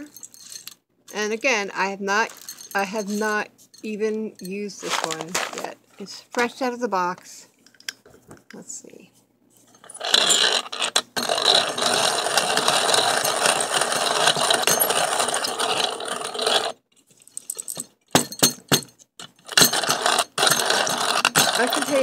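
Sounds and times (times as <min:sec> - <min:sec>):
hand coffee grinder grinding: 0:02.2 - 0:06.6, 0:09.7 - 0:16.8, 0:19.3 - 0:22.0.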